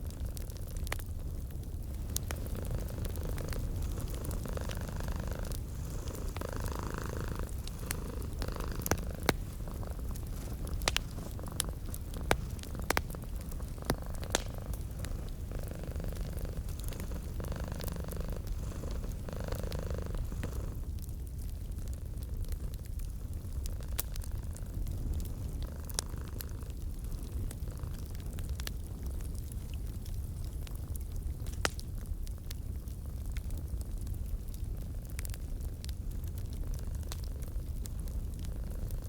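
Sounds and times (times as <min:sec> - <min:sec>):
crackling wood fire: 0:00.0 - 0:39.0
cat purring: 0:01.8 - 0:21.1, 0:22.0 - 0:29.1, 0:36.7 - 0:39.0.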